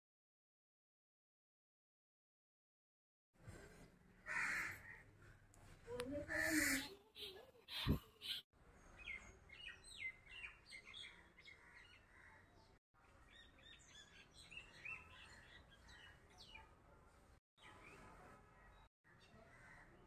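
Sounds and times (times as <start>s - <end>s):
small birds chirping: 4.9s - 20.0s.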